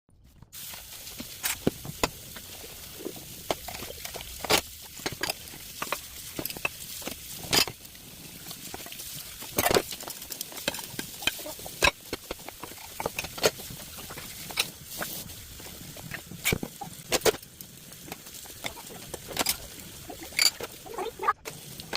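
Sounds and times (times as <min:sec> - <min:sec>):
household items clicking and clinking: 0:00.3 - 0:21.9
steady hiss: 0:00.6 - 0:21.9.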